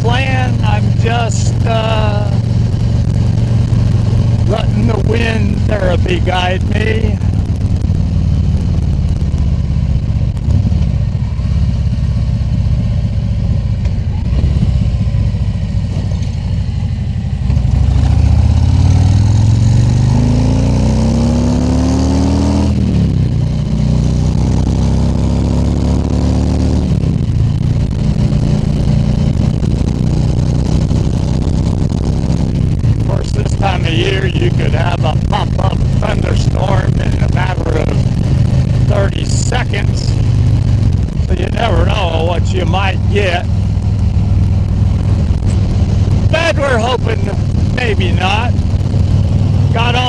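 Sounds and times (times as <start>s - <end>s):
trike engine running: 0.0s - 50.0s.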